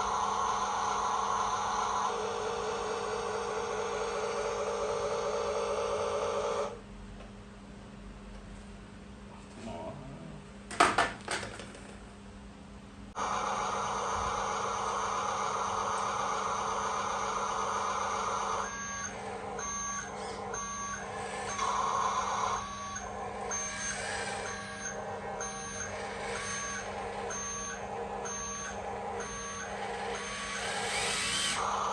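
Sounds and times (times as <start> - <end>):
reversing beeper: 13.2 - 31.9
toy truck motor rumble: 13.2 - 31.9.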